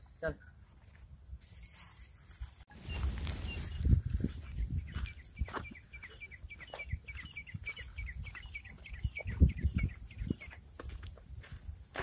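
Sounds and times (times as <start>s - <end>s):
footsteps on dirt track: 0.0s - 12.0s
small bird chirping: 2.7s - 10.6s.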